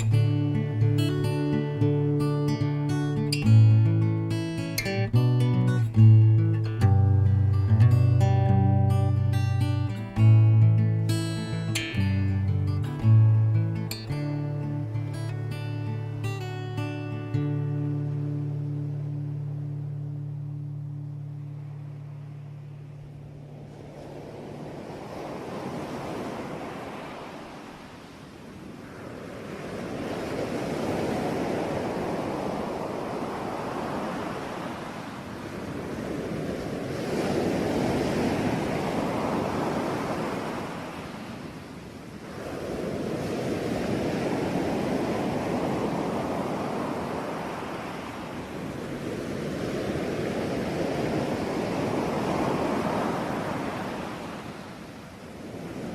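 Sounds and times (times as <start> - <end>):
sea waves breaking on shore: 0.0 - 55.9.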